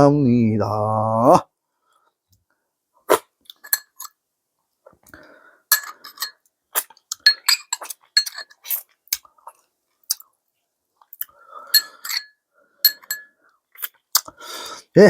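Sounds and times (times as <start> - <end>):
utensils clinking against a dish: 3.5 - 4.2, 5.7 - 6.4, 7.1 - 8.7, 11.6 - 13.4.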